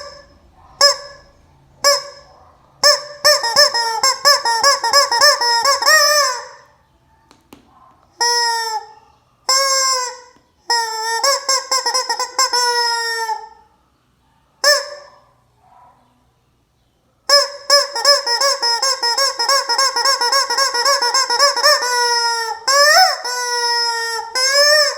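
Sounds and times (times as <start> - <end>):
hen squawking: 0.0 - 6.8.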